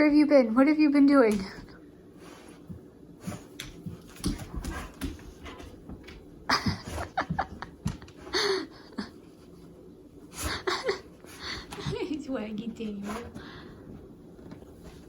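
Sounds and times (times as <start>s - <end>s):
dog snuffling and scuffling: 1.3s - 8.2s.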